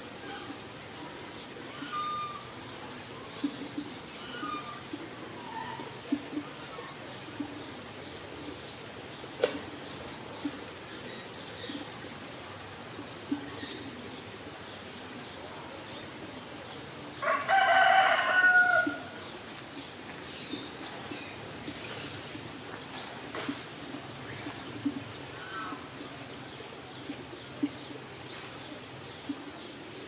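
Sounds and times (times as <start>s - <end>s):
drawn-out bird call: 1.7s - 2.6s.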